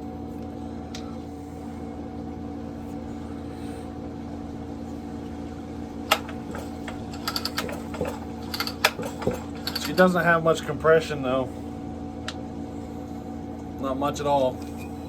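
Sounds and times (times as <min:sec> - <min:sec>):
steady background hum: 0:00.0 - 0:15.0
chainsaw handling clicks and rattles: 0:06.1 - 0:10.2.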